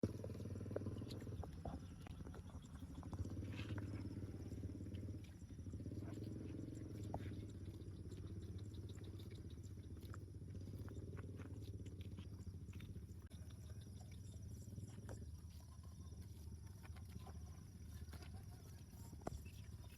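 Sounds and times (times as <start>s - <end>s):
small clicks and ticks: 0.0s - 19.9s.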